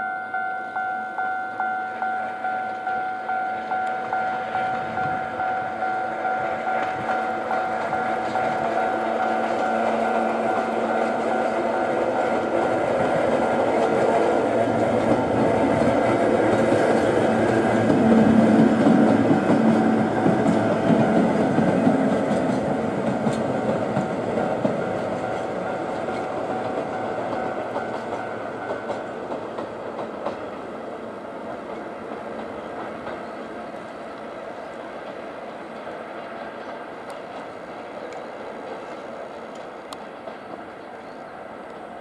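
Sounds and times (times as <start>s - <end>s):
locomotives rolling past: 3.6s - 42.0s
wheels clicking over rail joints: 5.8s - 30.7s.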